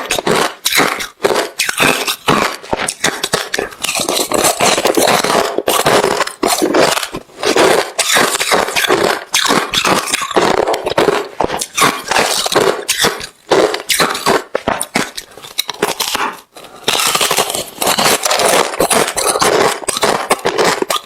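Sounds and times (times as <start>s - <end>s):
crunching ice chewing: 0.0s - 21.0s.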